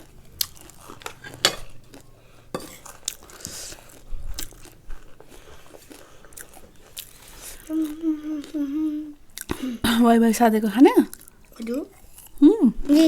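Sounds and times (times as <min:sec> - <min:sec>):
crunchy chips being chewed: 0:00.0 - 0:08.0.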